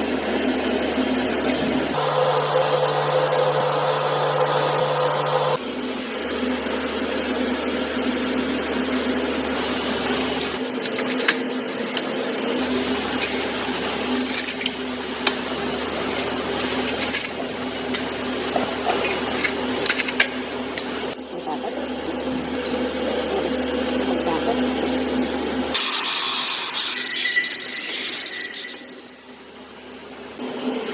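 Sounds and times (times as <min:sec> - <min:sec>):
assembly machinery hum: 0:00.0 - 0:25.9
metallic clicks of tools: 0:18.9 - 0:20.9.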